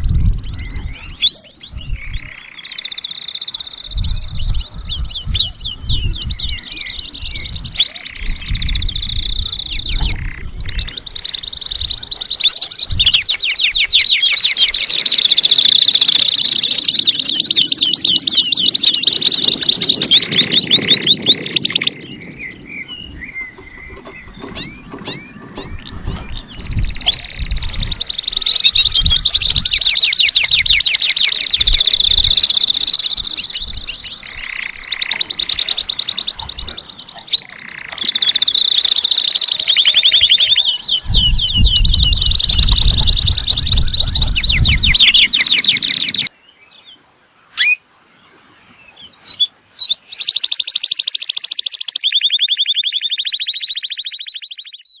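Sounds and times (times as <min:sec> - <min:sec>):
canary singing trills: 0:00.0 - 0:47.8, 0:48.7 - 0:55.0
low thuds: 0:20.0 - 0:28.1.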